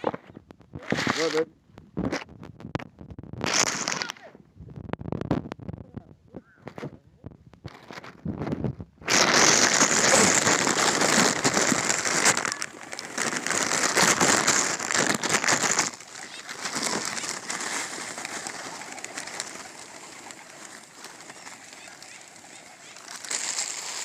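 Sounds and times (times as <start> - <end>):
flock of birds clamouring: 9.1 - 24.0.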